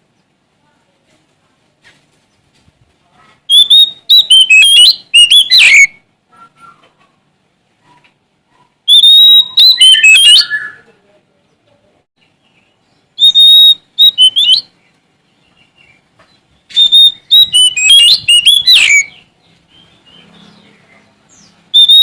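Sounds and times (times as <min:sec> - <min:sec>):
bird singing sharp whistles: 0:03.5 - 0:06.9, 0:08.9 - 0:10.8, 0:13.2 - 0:14.7, 0:16.7 - 0:19.2, 0:21.8 - 0:22.0.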